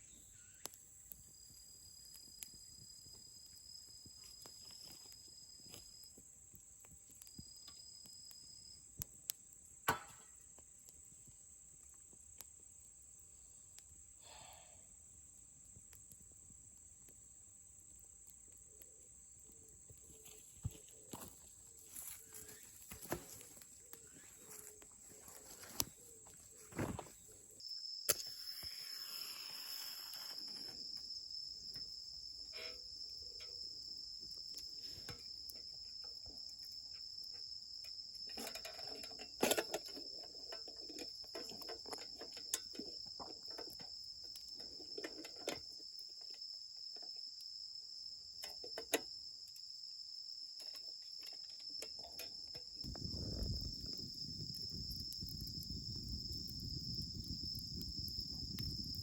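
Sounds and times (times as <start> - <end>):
campfire crackling and popping: 0.6 - 12.8, 52.7 - 59.0.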